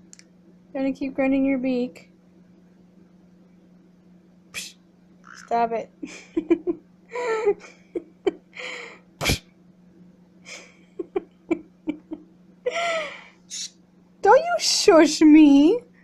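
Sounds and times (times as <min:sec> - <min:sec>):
parrot hissing: 0:04.6 - 0:05.5
beak clicks: 0:04.6 - 0:05.6.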